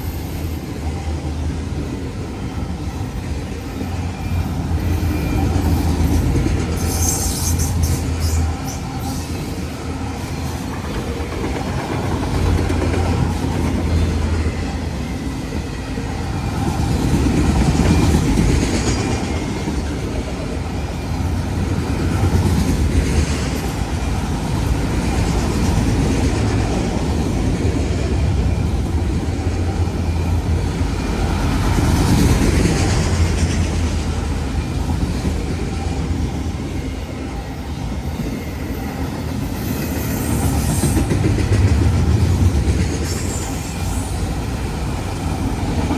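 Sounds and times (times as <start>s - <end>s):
freight train cars rolling past: 0.0s - 45.9s.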